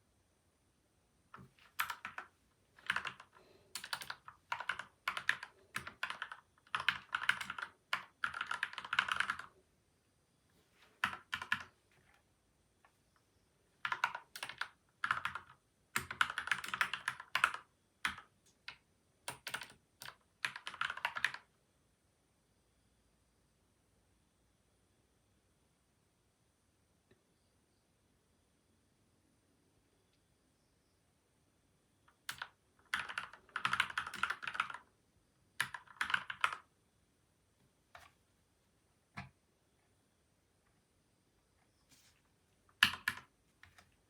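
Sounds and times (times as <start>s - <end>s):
typing on mechanical keyboard: 1.4s - 9.6s, 11.0s - 12.2s, 13.8s - 21.5s, 32.1s - 34.9s, 35.6s - 36.7s, 42.7s - 43.9s.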